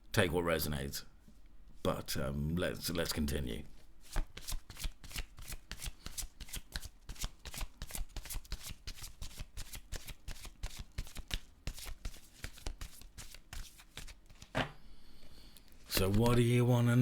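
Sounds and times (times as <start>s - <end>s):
cards being shuffled: 4.0s - 14.8s, 15.8s - 16.4s.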